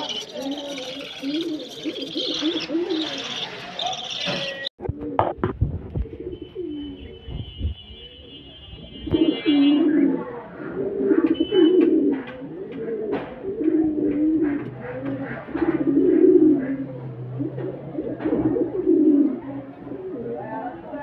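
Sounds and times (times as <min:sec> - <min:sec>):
high bird chirps: 0:00.0 - 0:04.7
bird cooing: 0:00.0 - 0:07.2, 0:09.2 - 0:21.0.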